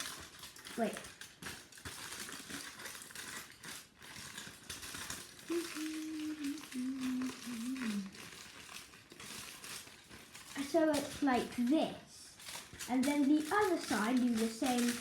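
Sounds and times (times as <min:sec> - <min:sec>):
aluminium foil crinkling: 0:00.0 - 0:15.0
person humming: 0:05.5 - 0:08.2.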